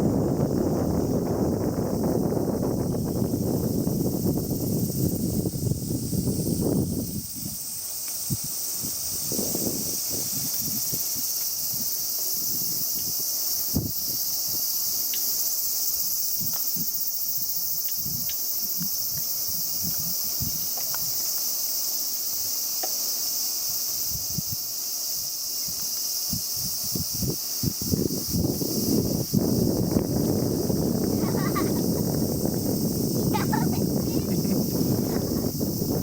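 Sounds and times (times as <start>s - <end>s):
insects singing: 0.0s - 36.0s.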